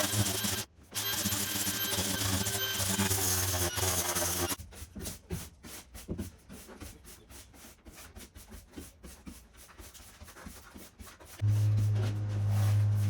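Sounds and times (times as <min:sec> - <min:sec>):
scratching and rubbing strokes: 0:06.5 - 0:13.0
loud sound cutting off: 0:11.4 - 0:13.0.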